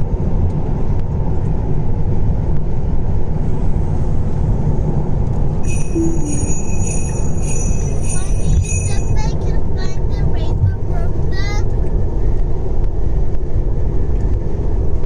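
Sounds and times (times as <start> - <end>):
road and tyre noise: 0.0 - 15.0
high pulsing chime: 5.6 - 9.8.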